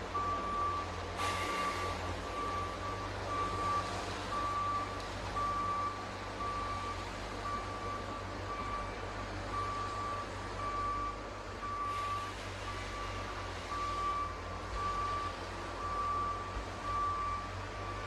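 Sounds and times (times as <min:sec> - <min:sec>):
engine running: 0:00.0 - 0:18.0
reversing alarm beeping: 0:00.2 - 0:18.0.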